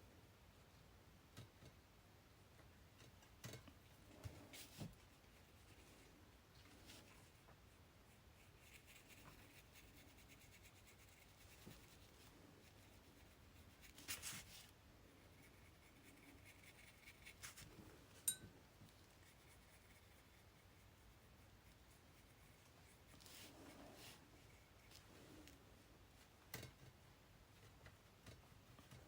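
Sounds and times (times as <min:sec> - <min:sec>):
paintbrush strokes on paper: 0:04.1 - 0:26.4
scratchy rustle: 0:08.4 - 0:14.7, 0:19.0 - 0:25.6.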